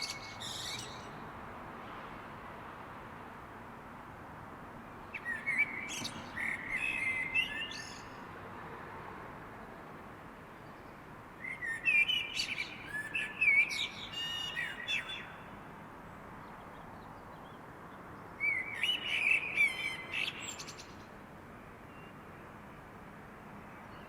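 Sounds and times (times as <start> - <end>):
songbird singing: 0.0 - 1.3, 5.1 - 8.2, 10.6 - 15.6, 16.4 - 21.2.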